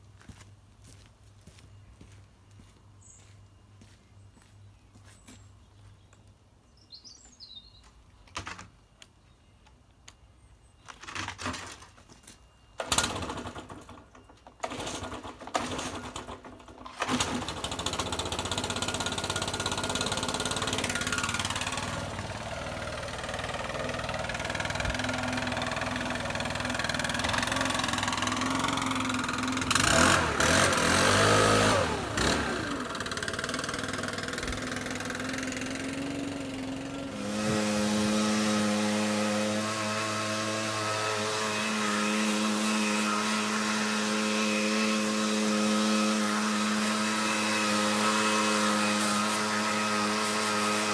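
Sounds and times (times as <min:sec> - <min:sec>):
starter cord pulls: 0:12.8 - 0:22.1
leaf blower engine running: 0:12.8 - 0:50.9.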